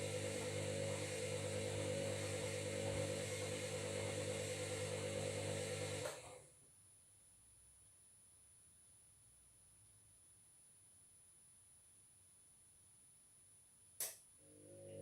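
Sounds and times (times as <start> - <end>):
washing machine motor hum: 0.0 - 6.5, 14.4 - 15.0.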